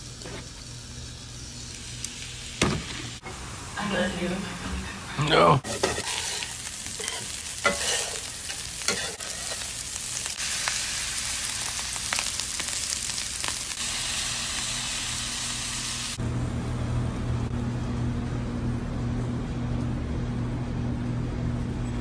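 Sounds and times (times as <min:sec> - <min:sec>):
rice and peppers sizzling: 0:00.0 - 0:16.2
spatula scraping pan: 0:05.6 - 0:09.8.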